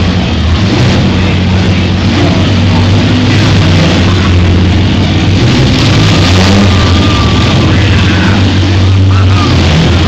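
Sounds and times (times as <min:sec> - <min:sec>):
van engines running: 0:00.0 - 0:10.0.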